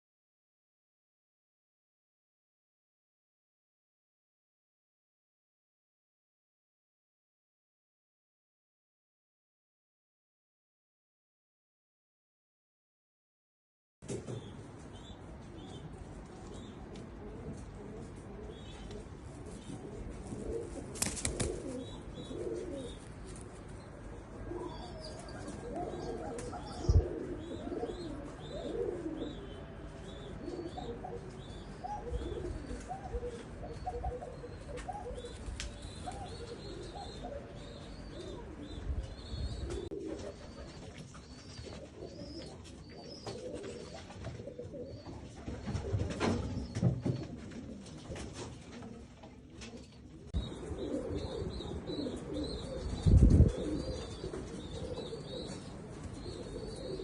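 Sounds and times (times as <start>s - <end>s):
pigeons cooing: 16.4s - 49.0s, 49.6s - 57.0s.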